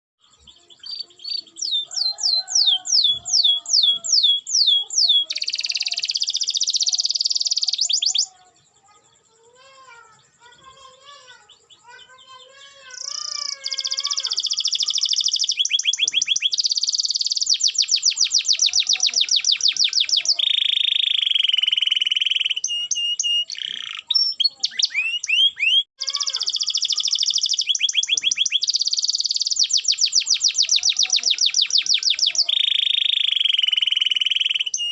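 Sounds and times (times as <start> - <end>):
canary singing trills: 0.2 - 34.9.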